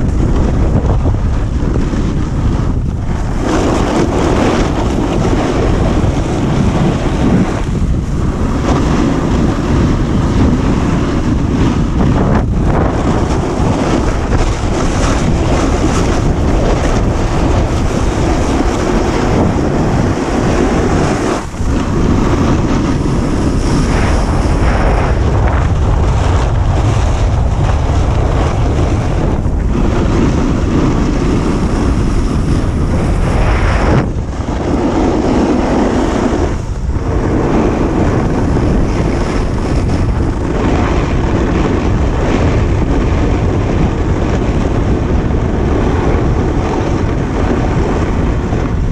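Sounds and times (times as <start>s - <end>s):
wind rushing over microphone: 0.0s - 48.9s.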